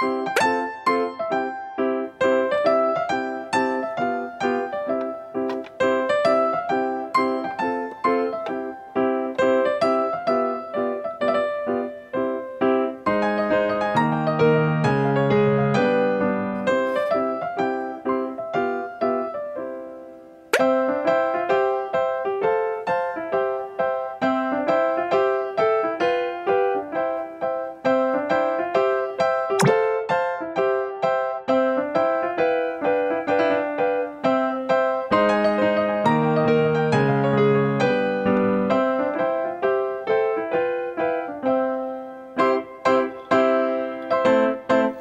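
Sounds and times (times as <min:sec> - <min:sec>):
bouncy keyboard tune: 0:00.0 - 0:30.3
gentle piano melody: 0:00.0 - 0:45.0.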